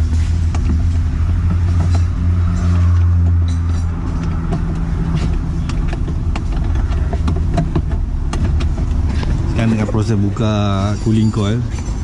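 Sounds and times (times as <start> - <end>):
sharp clicks and taps: 4.1 - 9.5.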